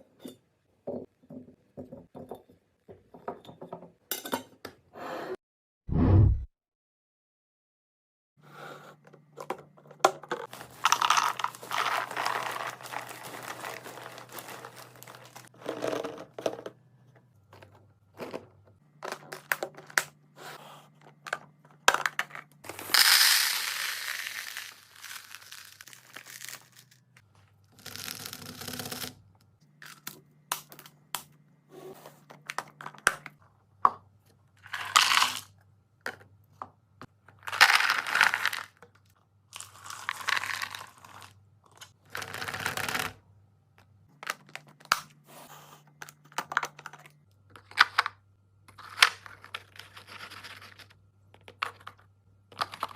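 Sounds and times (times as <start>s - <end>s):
items clicking and knocking: 9.0s - 20.2s, 20.9s - 23.4s, 32.1s - 40.9s, 45.9s - 52.9s
plastic packaging crinkling: 10.5s - 15.6s.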